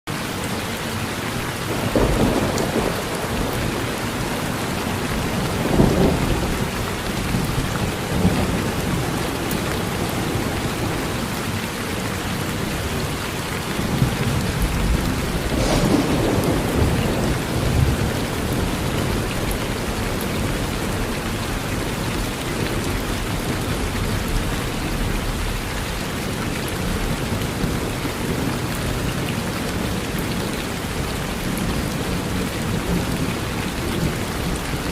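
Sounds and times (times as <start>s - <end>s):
rain falling on a porch: 0.1s - 34.9s
distant thunder rumbling: 1.7s - 11.4s, 13.8s - 25.6s.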